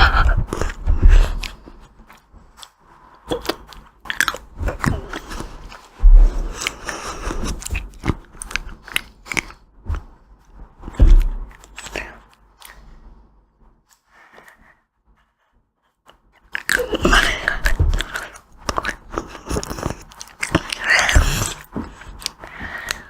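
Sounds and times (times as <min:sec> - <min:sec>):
crunchy ice cream chewing: 0:00.5 - 0:09.6, 0:16.4 - 0:23.0
heavy low thumps: 0:06.0 - 0:06.6.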